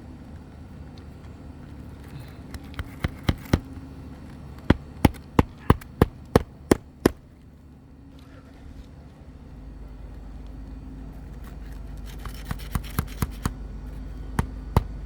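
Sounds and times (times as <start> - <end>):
hammer striking roofing nails: 2.5 - 3.8, 4.6 - 7.3, 12.2 - 13.6, 14.3 - 15.0.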